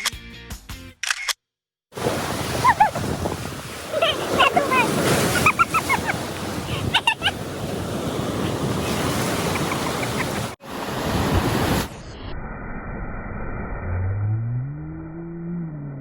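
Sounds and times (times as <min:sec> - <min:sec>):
sea waves washing on beach: 0:01.9 - 0:12.0
wind buffeting microphone: 0:02.0 - 0:11.9.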